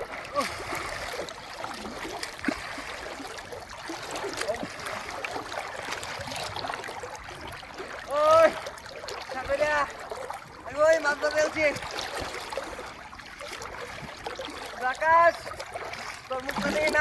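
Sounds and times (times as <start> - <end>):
river water trickling and gurgling: 0.0 - 17.0.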